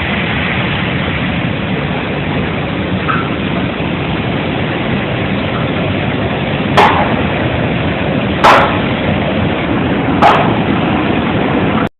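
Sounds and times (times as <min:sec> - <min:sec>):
dryer machinery running: 0:00.0 - 0:11.9
sharp loud bangs: 0:06.8 - 0:07.2, 0:08.4 - 0:08.9.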